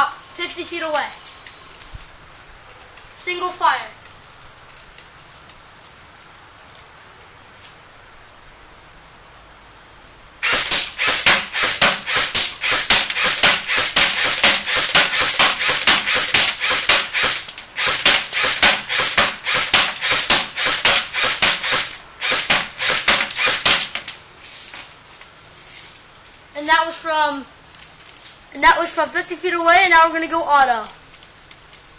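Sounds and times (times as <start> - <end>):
airsoft gun firing: 10.4 - 24.1.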